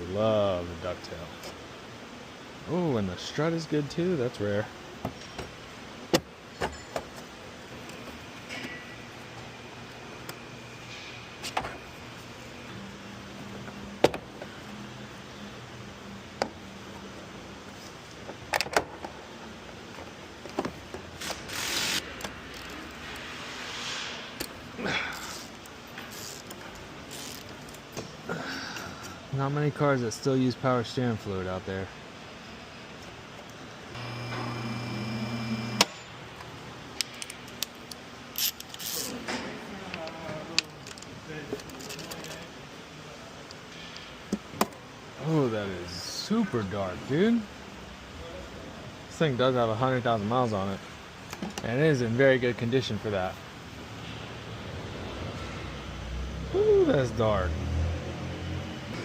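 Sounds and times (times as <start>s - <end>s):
electric motor humming: 34.0s - 35.9s.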